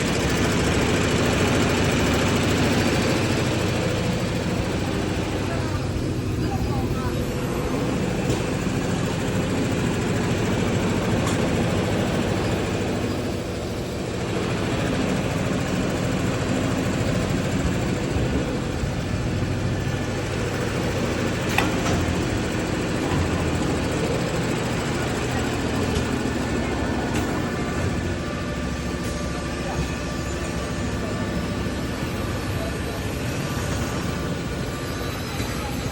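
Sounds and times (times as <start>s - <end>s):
machinery clattering and humming: 0.0s - 35.9s.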